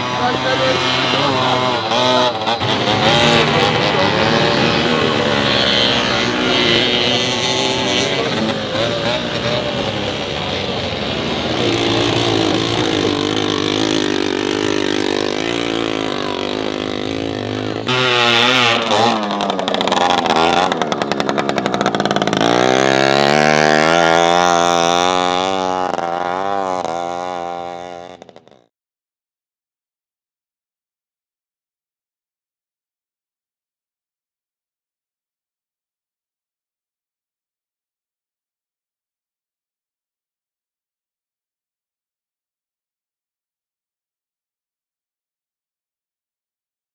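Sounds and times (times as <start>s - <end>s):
two-stroke motorcycle engines revving: 0.0s - 28.7s.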